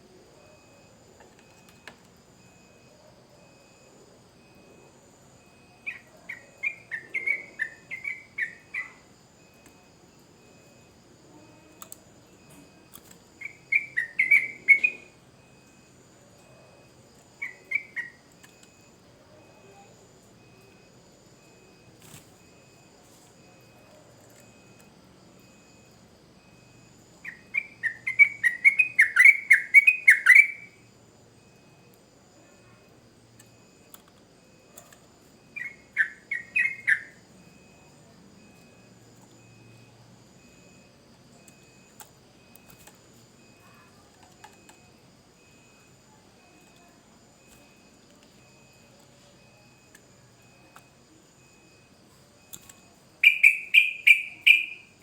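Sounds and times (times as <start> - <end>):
faint insect trill: 0.0 - 55.0
bird singing whistled notes: 13.4 - 15.0, 27.3 - 30.7, 35.6 - 37.2, 53.2 - 54.9.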